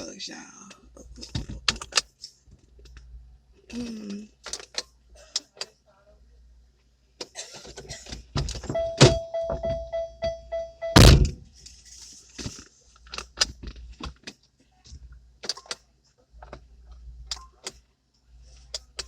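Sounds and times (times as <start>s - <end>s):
steady electronic tone: 8.7s - 11.3s
loud thump: 11.0s - 11.4s.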